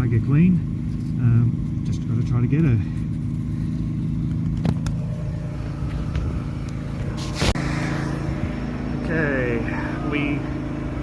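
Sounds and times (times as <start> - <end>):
engine humming steadily: 0.0 - 11.0
rustling: 5.8 - 7.6.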